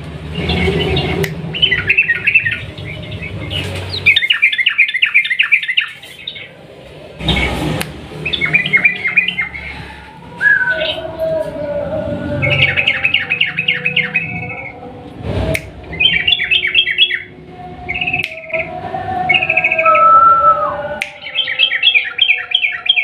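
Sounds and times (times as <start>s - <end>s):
bulbul singing: 0.3s - 6.6s, 7.2s - 23.0s.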